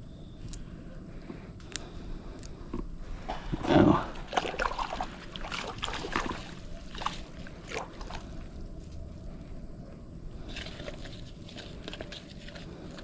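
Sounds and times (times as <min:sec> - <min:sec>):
water splashing: 0:03.3 - 0:08.5.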